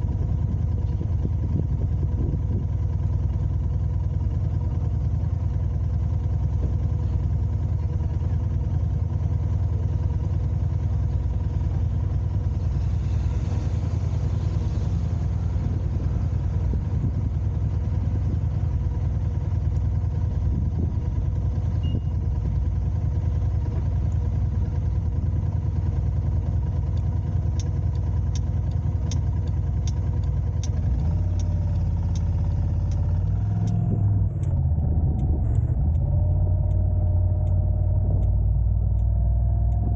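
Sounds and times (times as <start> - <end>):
car engine and road noise: 0.0 - 39.9
light ticking: 17.3 - 20.4, 21.3 - 39.9.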